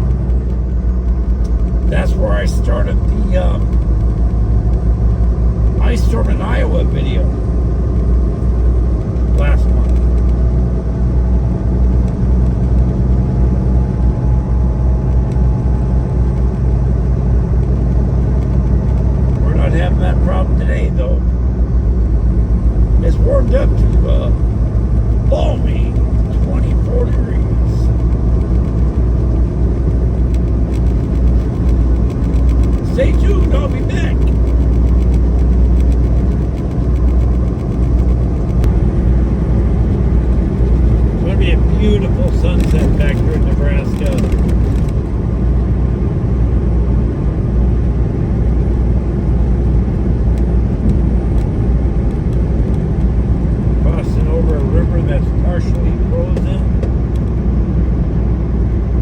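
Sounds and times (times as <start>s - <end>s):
road rumble: 0.0s - 59.0s
truck engine drone: 0.0s - 59.0s.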